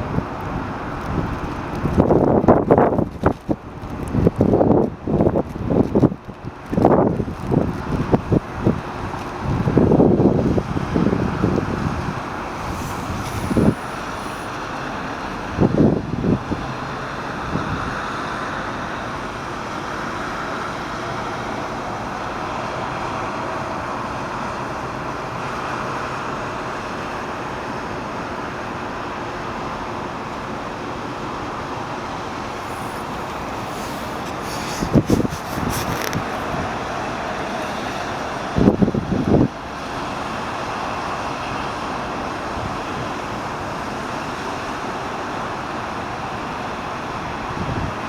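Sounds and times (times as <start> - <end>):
wind buffeting microphone: 0.0 - 18.0, 32.5 - 39.6
distant vehicle engines: 11.7 - 15.4.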